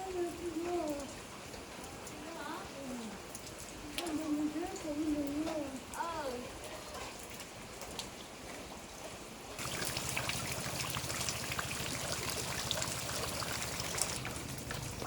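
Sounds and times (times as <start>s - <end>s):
rain and running water: 0.0s - 15.0s
water drops splashing: 9.6s - 15.0s.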